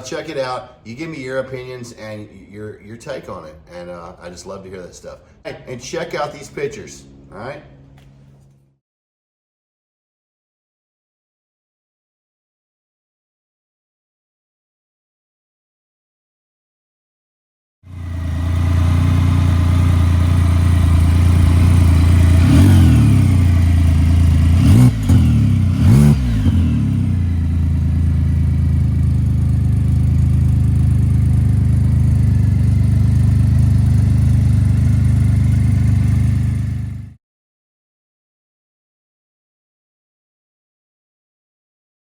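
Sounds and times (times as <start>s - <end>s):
engine idling: 17.9s - 37.2s.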